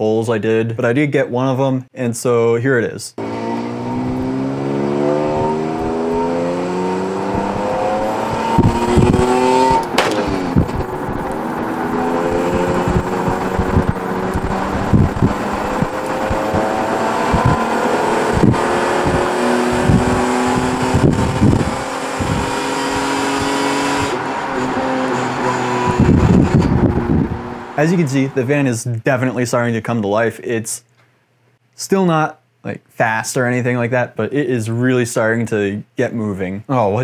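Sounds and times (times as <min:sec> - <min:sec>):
car engine revving at full throttle: 0:03.2 - 0:27.8.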